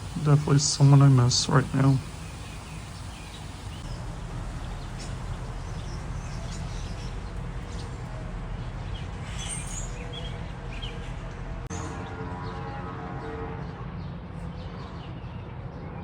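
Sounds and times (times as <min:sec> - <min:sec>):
small birds chirping: 0:00.0 - 0:11.4
low background rumble: 0:00.0 - 0:11.7.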